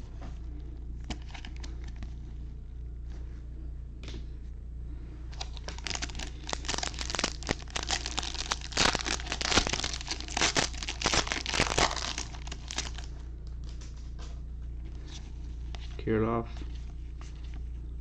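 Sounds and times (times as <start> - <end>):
steady low hum: 0.0 - 18.0
plastic wrapper crinkling and tearing: 5.3 - 13.1.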